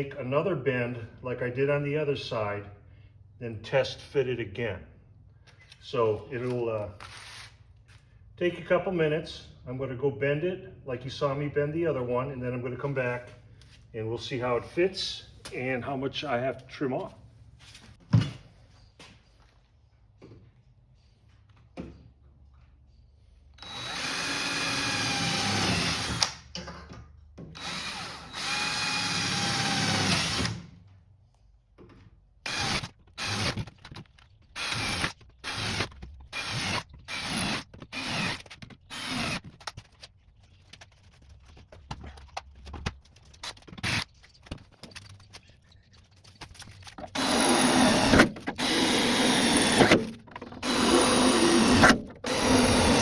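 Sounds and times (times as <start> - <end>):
power tool motor whining: 47.1 - 53.0.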